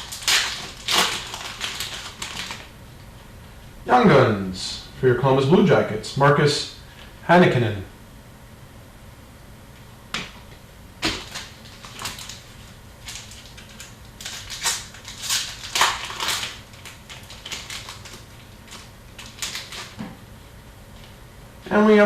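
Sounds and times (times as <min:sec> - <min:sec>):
card pack wrappers crinkling: 0:00.0 - 0:02.8, 0:11.0 - 0:20.0.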